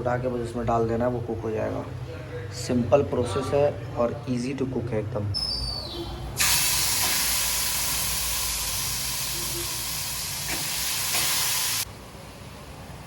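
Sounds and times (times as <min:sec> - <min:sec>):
chicken sizzling in hot oil: 0:06.4 - 0:11.9.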